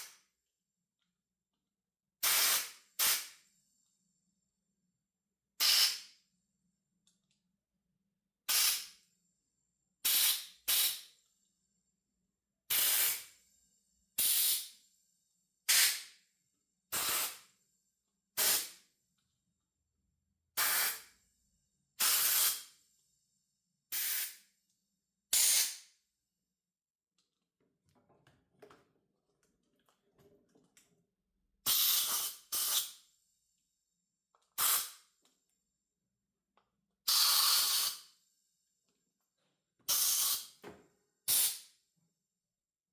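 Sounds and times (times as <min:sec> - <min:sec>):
faint clicking of parts: 0:07.0 - 0:07.5, 0:27.2 - 0:31.0.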